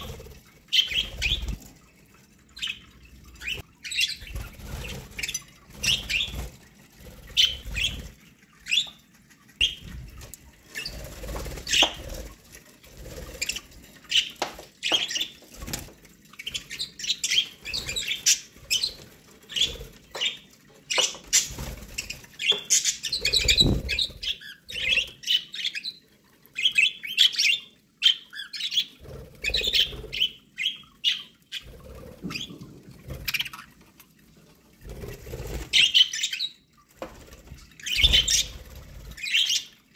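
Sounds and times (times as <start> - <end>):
budgerigars chirping and chattering: 0.0 - 1.6, 2.6 - 6.4, 7.2 - 9.0, 10.8 - 12.3, 16.4 - 26.0, 26.6 - 32.6, 35.6 - 36.6, 37.7 - 39.8.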